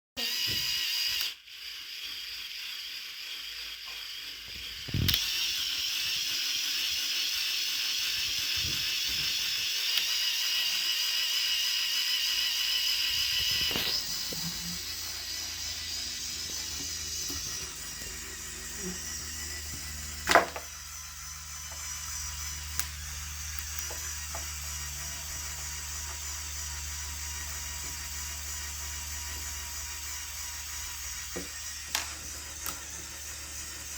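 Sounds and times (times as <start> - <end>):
electric motor whirring through gears: 0.2 - 33.9.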